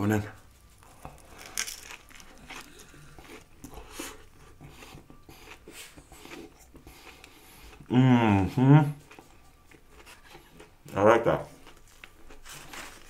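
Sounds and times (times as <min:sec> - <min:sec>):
crisp crunchy chewing: 0:00.6 - 0:07.9, 0:11.4 - 0:13.0.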